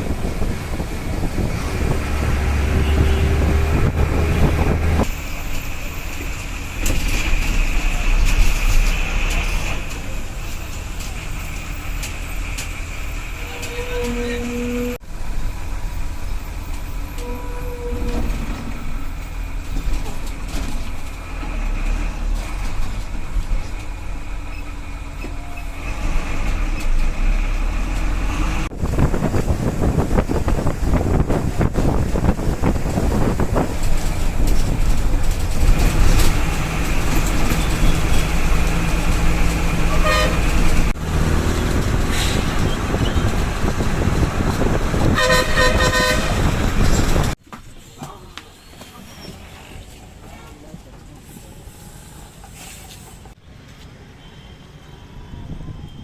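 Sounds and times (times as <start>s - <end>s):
vehicle engines running: 0.0s - 47.4s
car horns honking: 2.4s - 5.0s, 39.9s - 40.7s, 45.0s - 46.6s.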